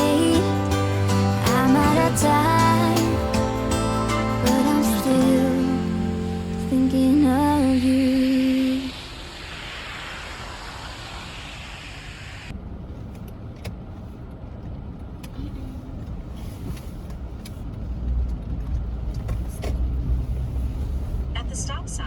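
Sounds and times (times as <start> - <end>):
background song: 0.0 - 9.0
steady hiss: 0.0 - 12.5
vehicle cabin rumble: 12.5 - 22.0.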